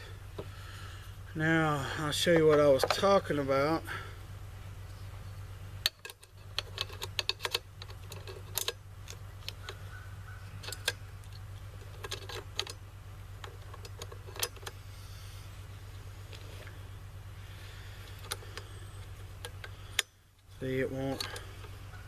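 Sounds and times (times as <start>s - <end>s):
steady low hum: 0.0s - 22.0s
metal parts clicking and tapping: 5.8s - 9.8s, 10.6s - 12.8s, 13.4s - 14.7s, 21.1s - 21.5s.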